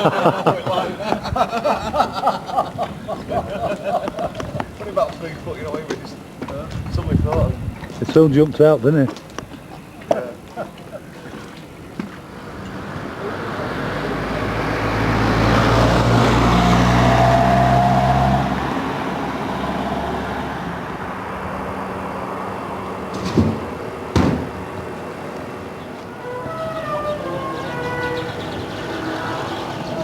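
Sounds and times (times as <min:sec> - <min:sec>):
engine passing by: 0:12.2 - 0:30.0
sharp knocks: 0:23.1 - 0:24.7.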